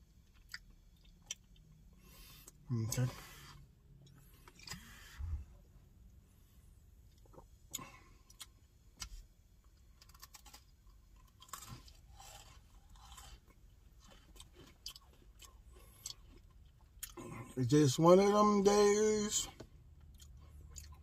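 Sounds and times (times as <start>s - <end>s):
faint cookie crunching: 7.0s - 17.6s.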